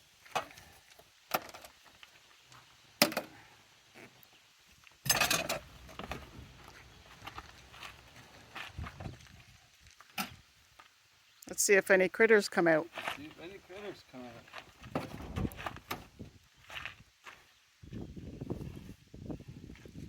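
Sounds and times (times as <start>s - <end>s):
knocks and clunks of seat: 14.8s - 16.2s.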